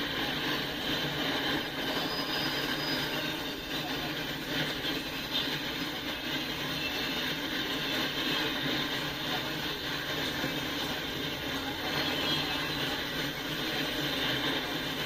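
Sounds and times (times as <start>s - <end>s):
steel wheels running on rails: 0.0s - 15.0s.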